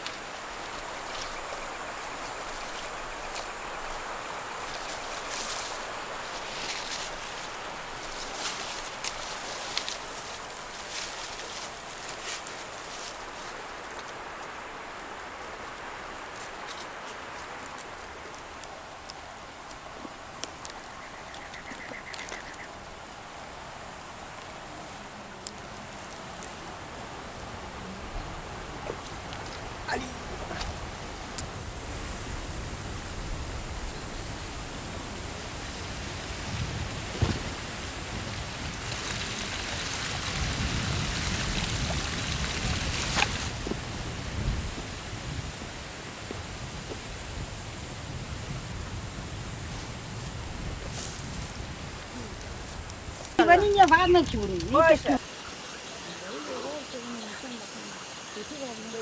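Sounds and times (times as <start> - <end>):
steady outdoor hiss: 0.0 - 59.0
twigs and leaves clicking: 4.7 - 14.5, 16.3 - 22.8.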